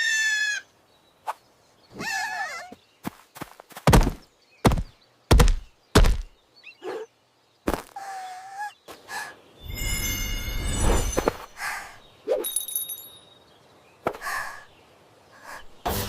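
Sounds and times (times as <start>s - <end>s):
heavy thuds: 3.8s - 6.3s.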